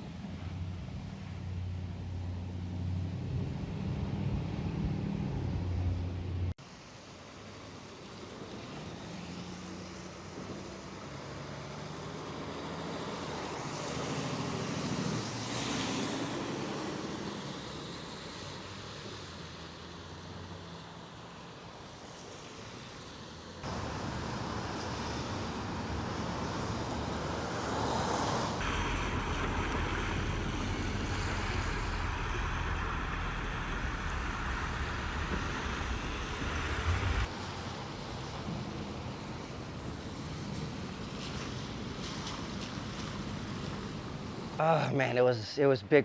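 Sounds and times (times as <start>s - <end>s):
wind: 0.0s - 46.0s
low rumble: 28.6s - 37.3s.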